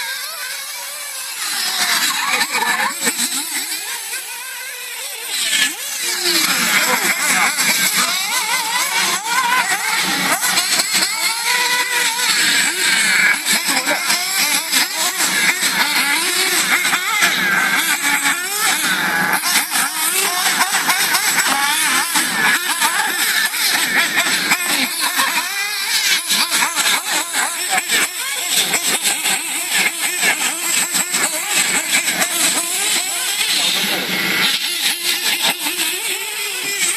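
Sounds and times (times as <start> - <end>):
rc car electric motors whining: 0.0 - 36.9.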